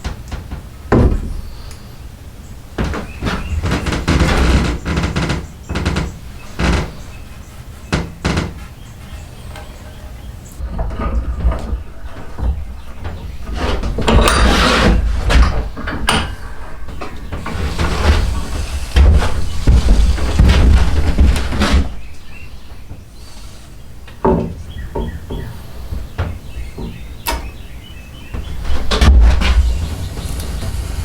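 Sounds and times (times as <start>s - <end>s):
knocking on wood: 0.0s - 1.7s, 7.9s - 8.8s, 10.7s - 22.1s, 24.1s - 27.7s
hand tool scraping wood: 2.8s - 22.4s, 28.4s - 31.0s.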